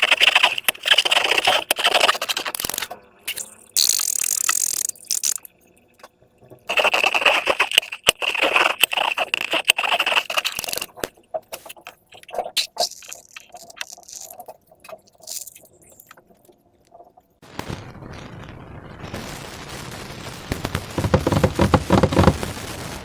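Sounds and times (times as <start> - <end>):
slime squished by hand: 6.7 - 16.2.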